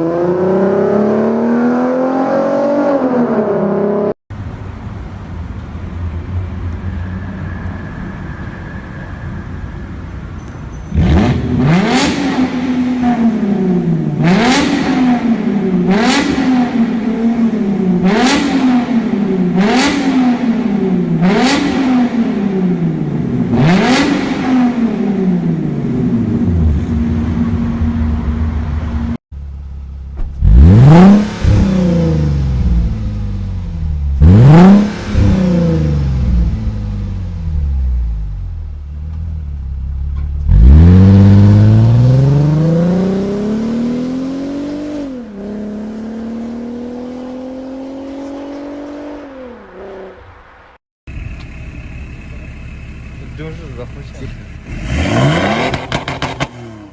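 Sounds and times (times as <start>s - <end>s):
car engine revving: 0.0s - 56.9s
engine throttle blips: 4.3s - 47.3s.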